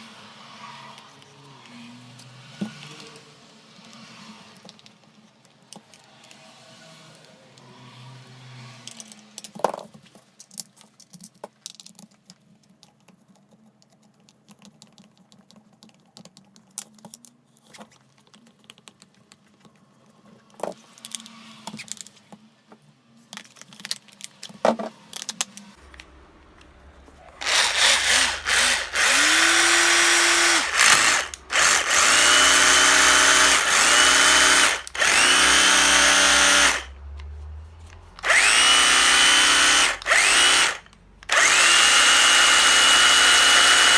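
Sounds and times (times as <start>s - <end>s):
cordless drill motor whining: 27.4s - 37.0s, 38.2s - 43.9s.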